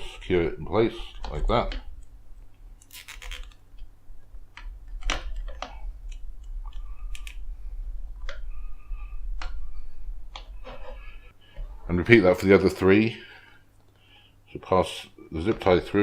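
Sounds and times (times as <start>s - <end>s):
plastic parts clicking and scraping: 4.5s - 7.5s.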